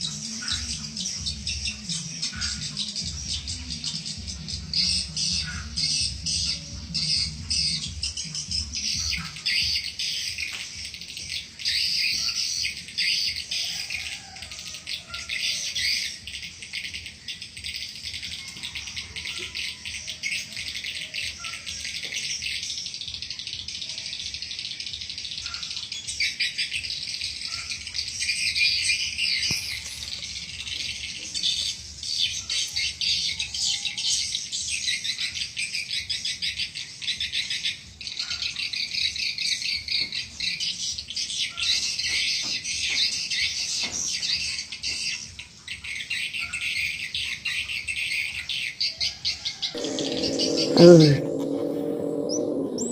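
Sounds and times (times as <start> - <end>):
faint low hum: 49.8 - 52.9.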